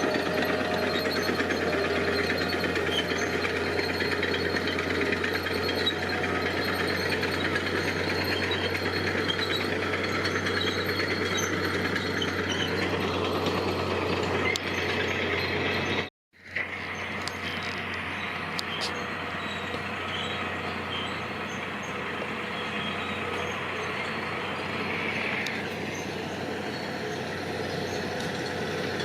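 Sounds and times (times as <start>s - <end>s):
diesel engine rattling: 0.0s - 29.0s.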